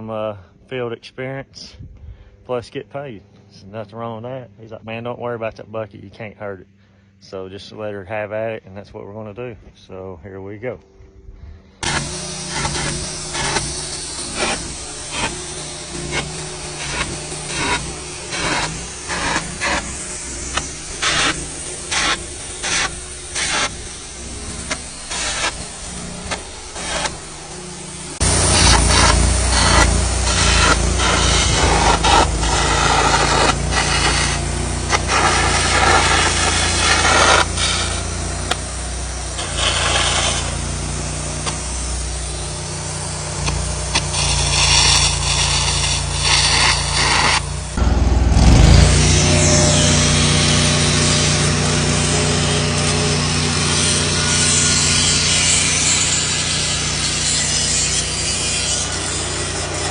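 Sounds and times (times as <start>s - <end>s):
welder engine running: 11.5s - 59.9s
arc gouging crackling hiss: 11.6s - 47.8s.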